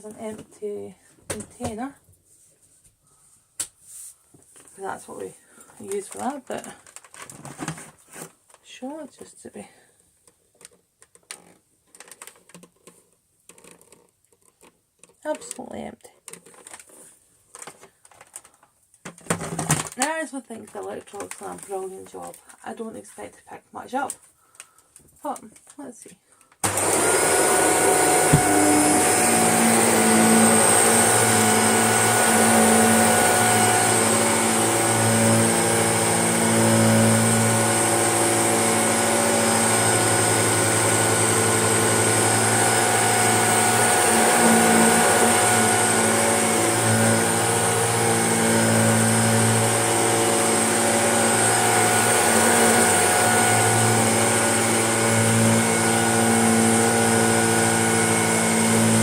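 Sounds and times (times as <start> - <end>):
vacuum cleaner running: 26.6 - 59.0.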